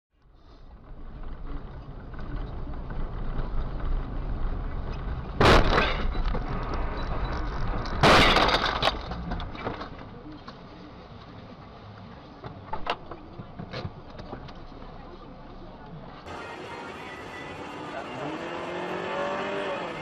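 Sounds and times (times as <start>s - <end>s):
vehicle and road rumble: 0.2s - 20.0s
car crashes: 5.3s - 10.1s
glass breaking: 8.0s - 8.8s.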